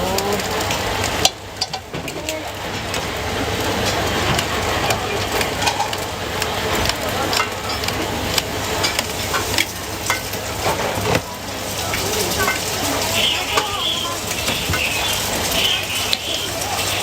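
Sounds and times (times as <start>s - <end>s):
food sizzling on a hot pan: 0.0s - 17.0s
metal utensils scraping a pan: 8.7s - 17.0s.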